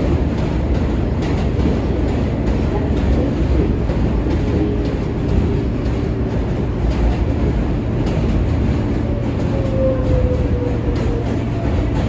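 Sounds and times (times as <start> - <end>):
subway wheels rumbling on track: 0.0 - 12.0.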